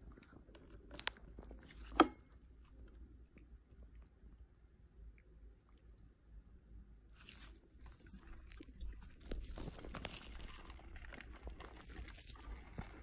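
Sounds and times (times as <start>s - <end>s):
crunching and chewing: 0.0s - 4.3s, 7.1s - 13.0s.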